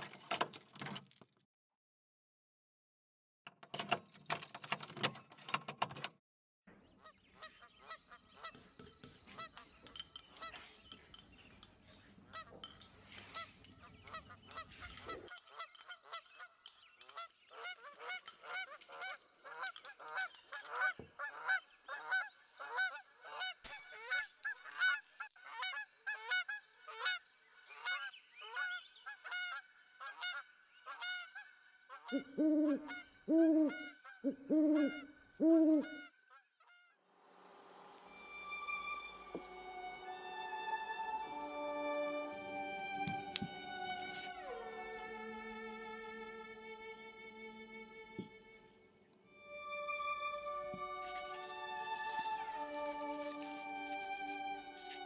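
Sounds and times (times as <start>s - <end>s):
geese honking: 12.3s - 23.6s.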